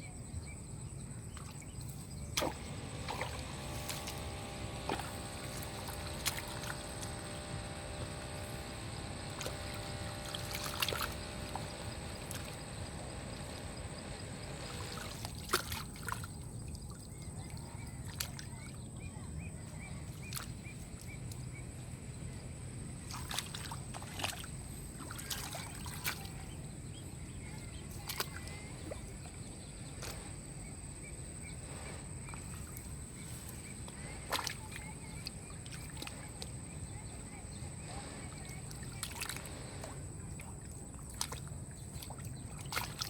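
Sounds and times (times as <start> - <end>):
water sloshing: 1.2 - 43.0
thin high whine: 2.4 - 15.3.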